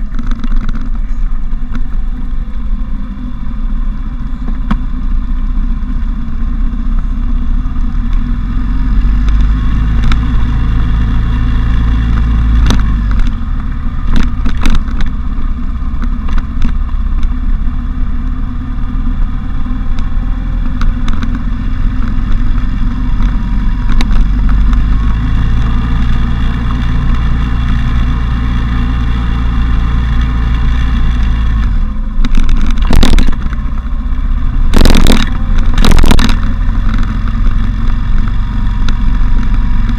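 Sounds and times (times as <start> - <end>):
knocks and clatter: 0.0 - 1.9, 11.4 - 15.2, 29.9 - 33.9, 34.6 - 39.9
motorcycle engine running: 0.0 - 39.9
wind rumble on microphone: 0.0 - 39.9.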